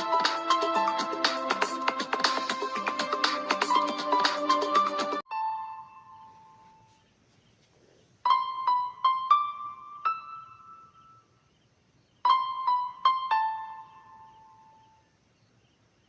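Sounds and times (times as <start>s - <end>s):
tinkling electric piano melody: 5.2s - 6.9s, 8.3s - 11.3s, 12.2s - 15.0s.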